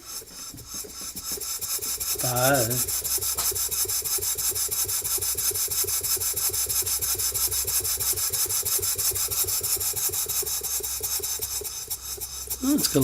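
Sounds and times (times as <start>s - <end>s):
steam engine exhaust beating: 0.0s - 13.0s.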